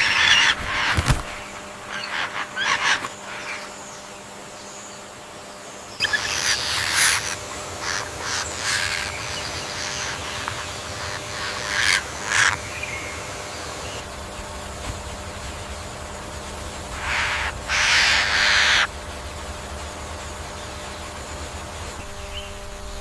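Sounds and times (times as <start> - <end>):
parrots harsh raspy calls: 0.0 - 3.8, 5.9 - 14.0, 16.9 - 18.9.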